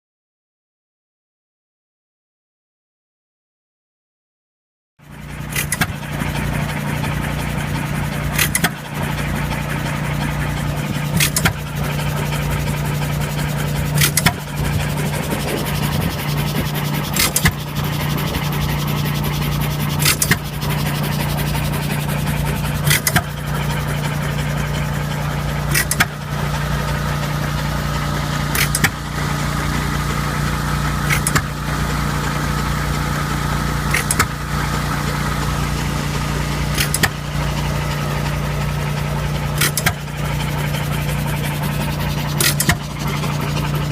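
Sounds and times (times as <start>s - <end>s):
hit-and-miss engine firing: 5.0s - 43.9s
low steady hum: 11.8s - 23.9s.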